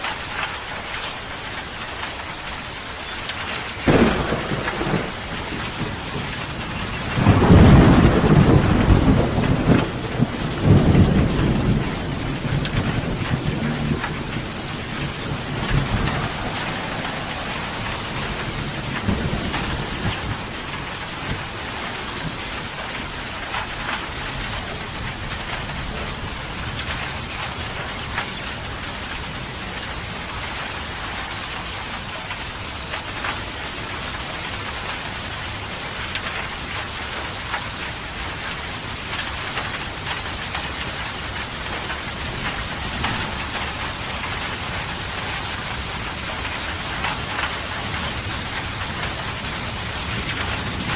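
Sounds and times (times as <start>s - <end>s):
steady rain falling: 0.0s - 50.9s
low thunder rumbling: 3.7s - 33.4s, 34.0s - 50.9s.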